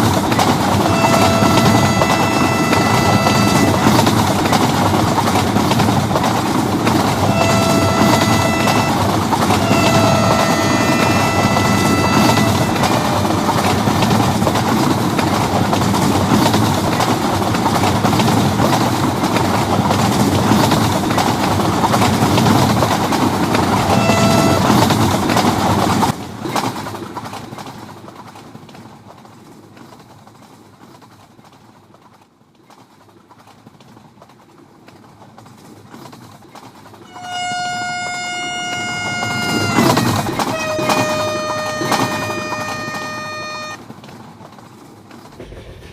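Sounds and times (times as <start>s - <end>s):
train rushing on rails: 0.0s - 45.9s
two-note train horn: 0.8s - 4.2s, 7.0s - 14.3s, 23.6s - 25.0s, 37.1s - 43.8s.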